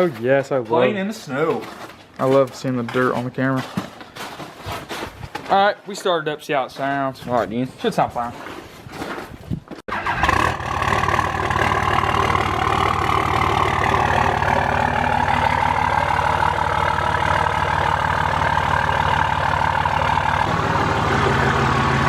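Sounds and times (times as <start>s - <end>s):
diesel engine starting and idling: 9.9s - 22.0s.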